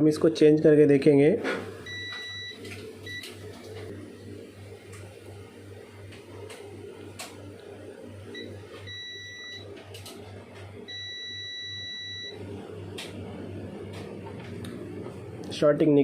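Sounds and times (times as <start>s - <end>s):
multimeter beeps: 1.9s - 3.4s, 8.3s - 9.6s, 10.9s - 12.4s.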